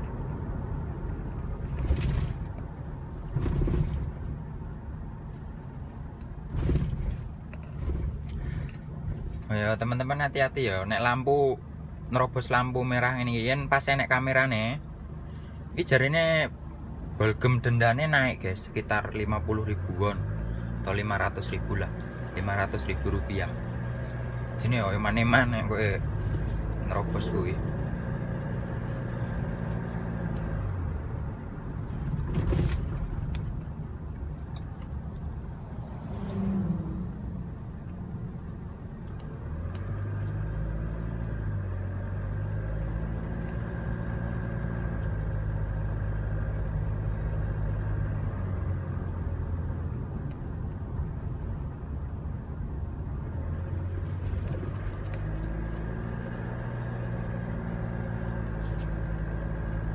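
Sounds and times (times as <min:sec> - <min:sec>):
truck engine humming: 0:20.2 - 0:59.9.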